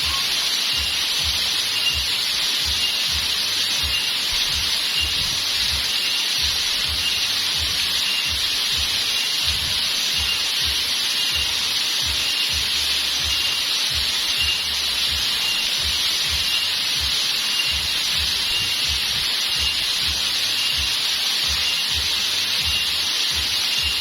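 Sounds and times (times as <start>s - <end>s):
faint chirp: 0.0s - 9.5s
waterfall rushing: 0.0s - 24.0s.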